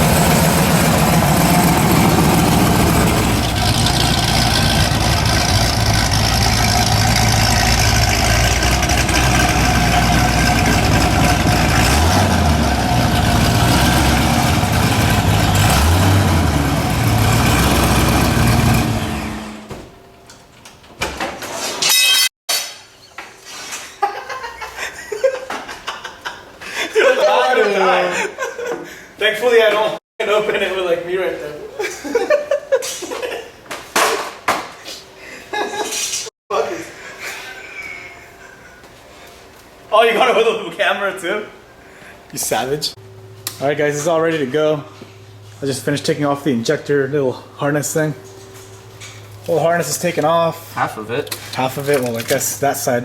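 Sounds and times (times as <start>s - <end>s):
vehicle engine idling and revving: 0.0s - 19.7s.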